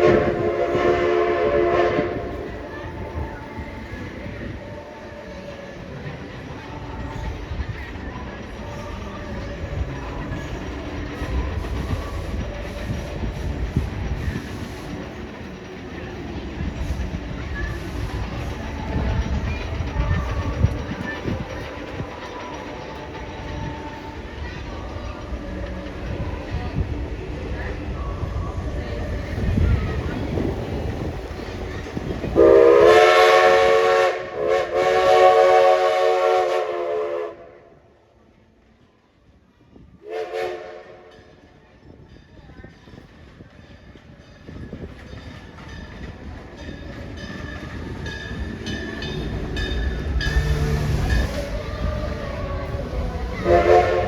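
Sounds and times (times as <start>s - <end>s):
steam train chime whistle: 0.0s - 3.0s, 32.3s - 37.6s, 40.0s - 41.5s, 46.9s - 54.0s
train wheel clatter: 0.0s - 36.9s, 39.7s - 54.0s
train rumbling on track: 0.0s - 54.0s.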